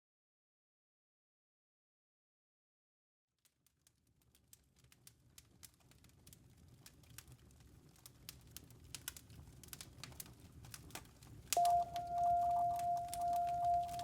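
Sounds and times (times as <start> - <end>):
campfire crackling and popping: 3.6 - 14.0
loud steady ringing tone: 11.6 - 14.0.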